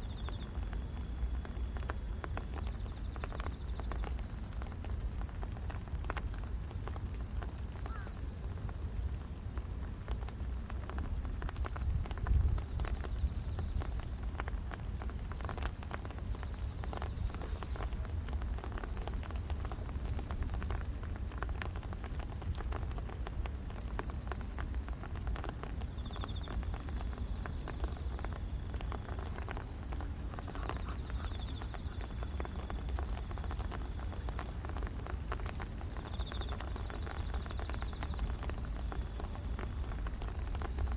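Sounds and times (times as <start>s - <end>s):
insect chirping pulses: 10.5s - 40.9s
insect high-pitched trill: 26.0s - 40.9s.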